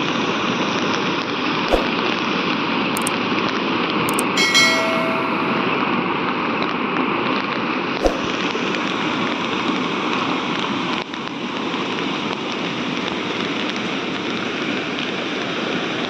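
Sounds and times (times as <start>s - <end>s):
sharp click: 1.7s - 2.0s, 4.1s - 5.8s.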